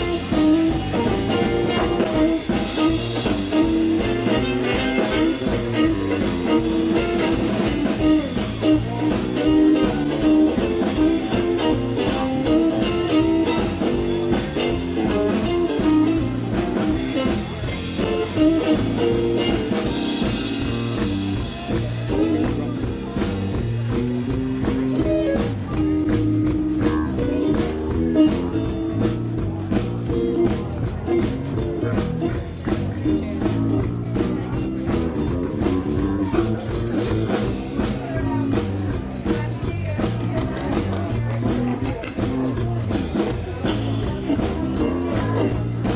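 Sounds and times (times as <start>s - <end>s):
electric guitar: 0.0s - 45.9s
live blues-rock band playing: 0.0s - 45.9s.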